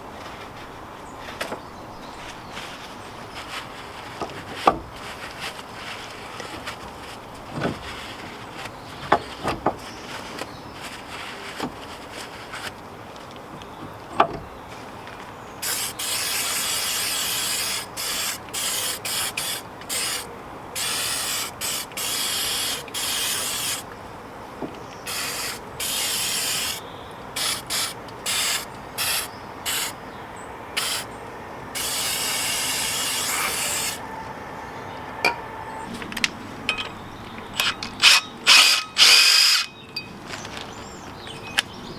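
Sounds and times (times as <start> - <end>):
aerosol spray hissing: 15.6 - 23.8, 25.1 - 26.8, 27.4 - 30.0, 30.8 - 31.1, 31.8 - 34.0.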